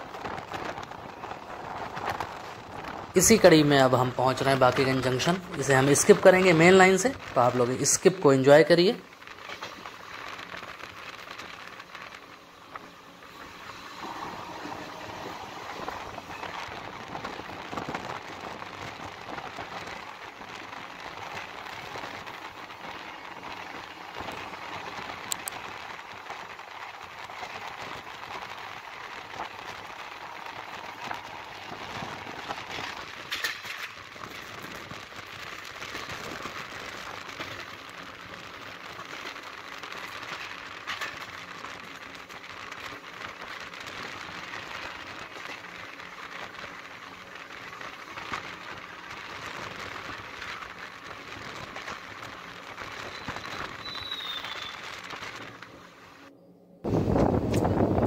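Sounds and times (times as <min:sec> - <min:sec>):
train rushing hiss: 0:13.5 - 0:16.2
wheel clicks over rail joints: 0:29.3 - 0:49.0.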